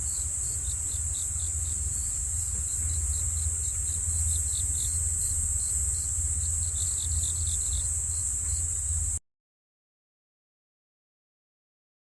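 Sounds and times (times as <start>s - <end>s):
insects chirping: 0.0s - 9.2s
low rumble: 0.0s - 9.2s.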